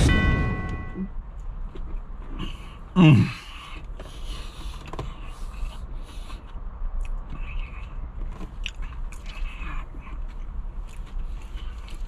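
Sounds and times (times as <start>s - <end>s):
low steady hum: 0.0s - 12.0s
person chewing crunchy food: 8.6s - 12.0s.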